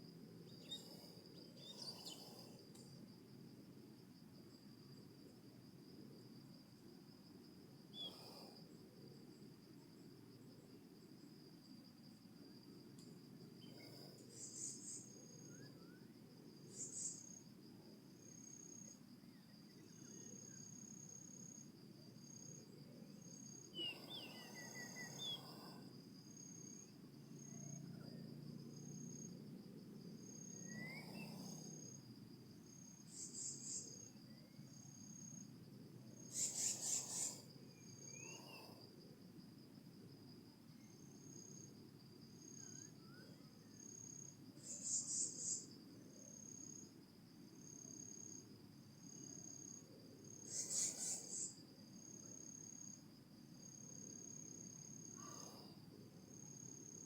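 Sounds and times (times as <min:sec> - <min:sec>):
insect trilling: 0:36.2 - 0:38.7, 0:43.8 - 0:45.7, 0:49.2 - 0:53.0.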